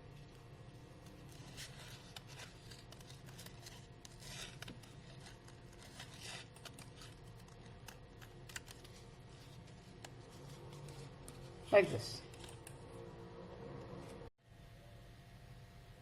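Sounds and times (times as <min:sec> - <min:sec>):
paper rustling: 0:00.0 - 0:12.9
scissors snipping: 0:01.3 - 0:09.0.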